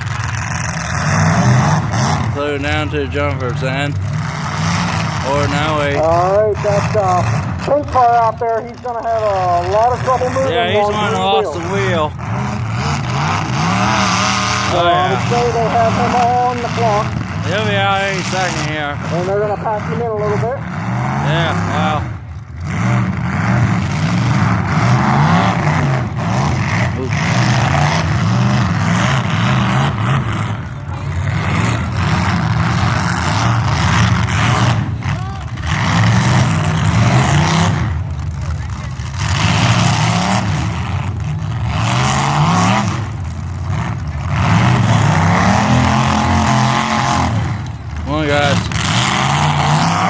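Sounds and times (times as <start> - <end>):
car engines revving: 0.0 - 50.0.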